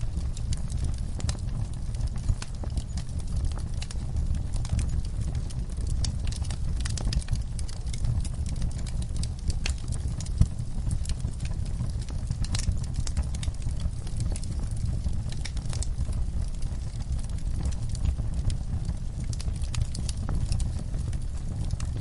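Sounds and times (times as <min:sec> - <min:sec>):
steady low rumble: 0:00.0 - 0:22.0
wood fire crackling and popping: 0:00.0 - 0:22.0.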